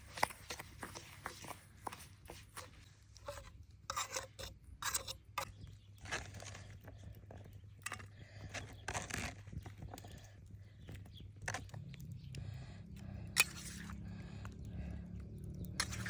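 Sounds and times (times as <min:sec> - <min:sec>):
kitchen utensils scraping: 0:00.0 - 0:05.6, 0:13.4 - 0:14.0, 0:15.8 - 0:16.0
steady low hum: 0:06.4 - 0:16.0.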